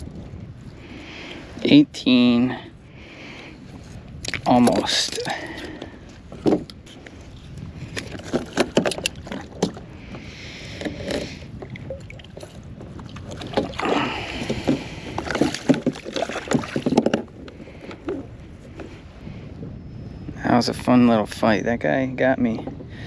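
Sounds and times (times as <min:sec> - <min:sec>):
knocks and rattles on kayak hull: 0:04.3 - 0:06.8, 0:07.8 - 0:19.0, 0:22.4 - 0:23.0
water splashing: 0:11.8 - 0:17.1.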